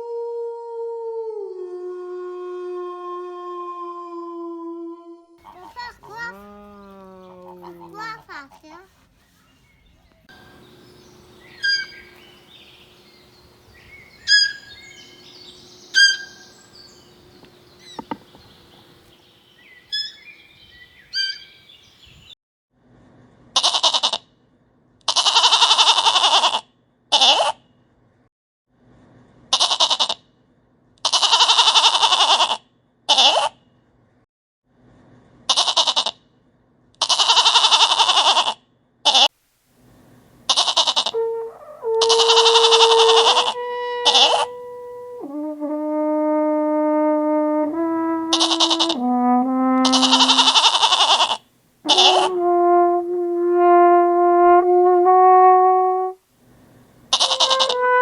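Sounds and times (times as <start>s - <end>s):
long pulsing animal call: 10.3s - 19.0s, 40.5s - 45.6s, 48.0s - 49.1s, 49.8s - 52.6s, 57.1s - 58.0s
short high chirps: 11.4s - 12.7s, 13.8s - 15.3s, 15.9s - 16.9s, 19.8s - 20.4s, 21.1s - 21.5s.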